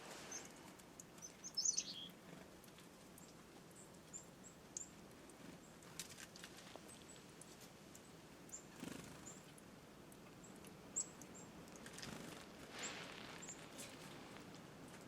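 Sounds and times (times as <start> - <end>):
soft rustling: 0.0 - 0.8, 11.8 - 15.0.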